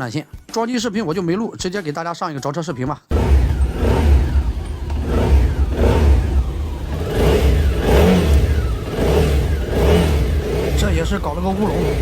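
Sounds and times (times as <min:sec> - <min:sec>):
motorcycle engine revving: 0:03.1 - 0:12.0.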